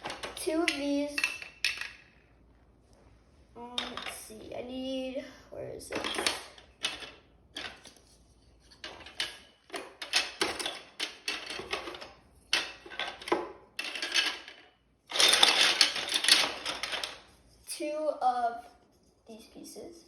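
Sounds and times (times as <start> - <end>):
plastic pieces clattering and clicking: 5.9 - 8.0, 8.8 - 17.3.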